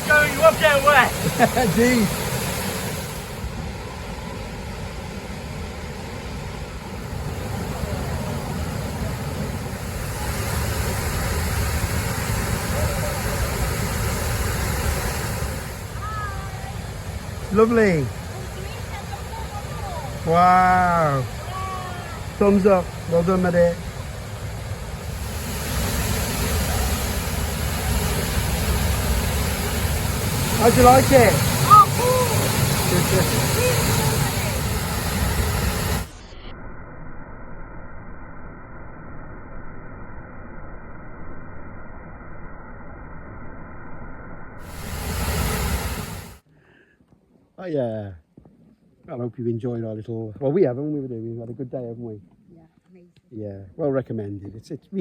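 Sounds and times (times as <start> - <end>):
waterfall rushing: 0.0 - 3.7, 7.0 - 36.2, 44.6 - 46.4.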